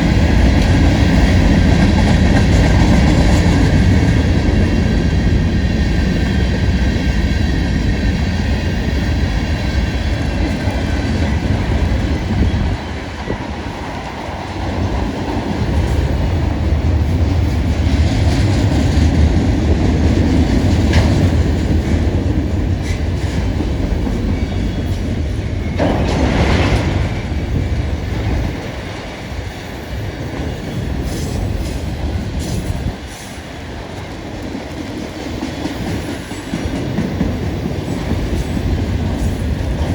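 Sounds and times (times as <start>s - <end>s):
freight train rumbling past: 0.0s - 39.9s
wheel clatter over rail joints: 17.0s - 29.5s.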